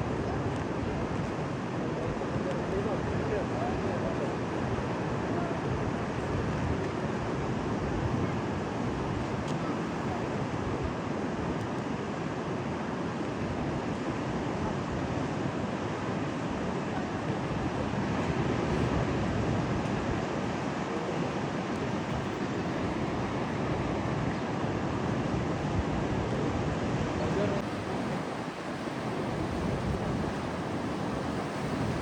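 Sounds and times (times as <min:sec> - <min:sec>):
wind buffeting microphone: 0:05.6 - 0:11.0, 0:16.5 - 0:32.0
surf crashing: 0:13.8 - 0:32.0.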